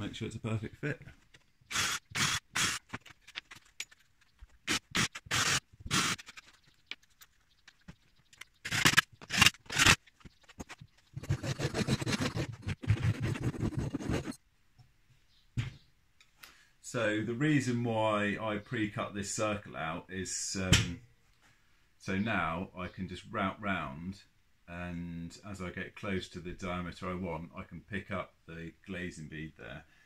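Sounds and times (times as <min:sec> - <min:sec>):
saw cutting chipboard: 0:01.7 - 0:03.0, 0:04.6 - 0:06.3, 0:08.6 - 0:10.0, 0:11.2 - 0:14.4.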